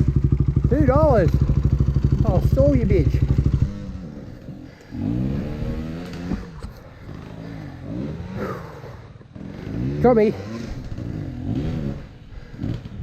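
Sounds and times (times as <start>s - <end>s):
dirt bike engine thumping: 0.0s - 8.3s
dirt bike engine revving: 0.0s - 13.0s.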